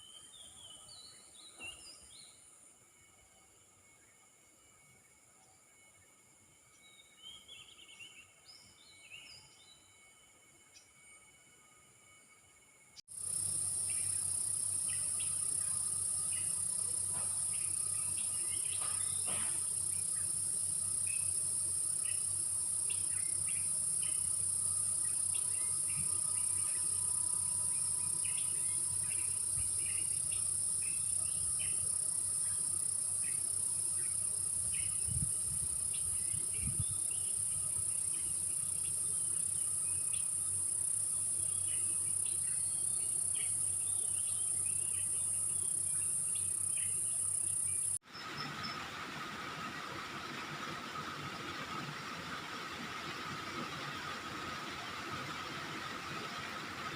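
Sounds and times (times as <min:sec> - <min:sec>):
insect chirps: 0:00.0 - 0:56.9
crickets and cicadas shrilling: 0:12.3 - 0:56.9.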